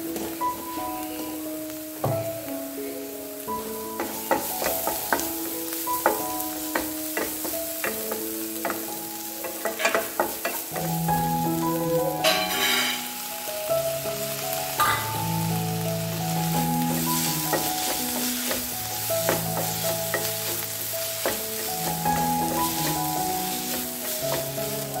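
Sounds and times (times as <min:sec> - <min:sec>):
background music of held notes: 0:00.0 - 0:25.0
tomatoes sizzling in a pan: 0:00.0 - 0:25.0
wooden spatula scraping and knocking: 0:04.0 - 0:11.0, 0:16.4 - 0:25.0.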